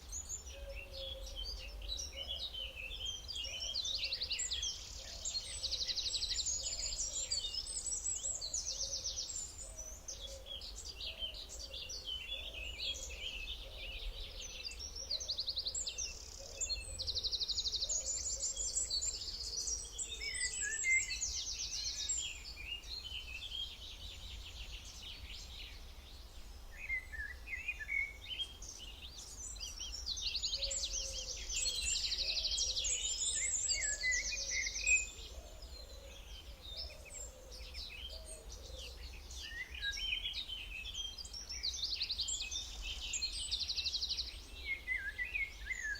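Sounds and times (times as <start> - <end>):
songbirds singing: 0.0 - 45.9.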